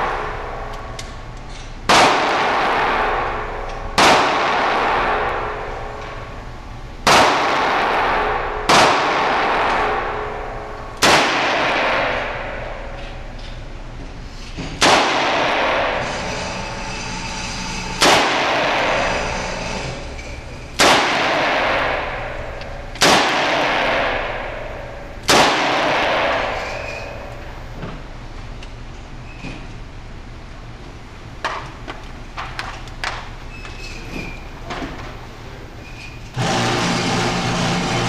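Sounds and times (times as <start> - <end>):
gunshots with echo: 0.0 - 13.3, 14.8 - 16.4, 17.9 - 20.1, 20.8 - 27.7.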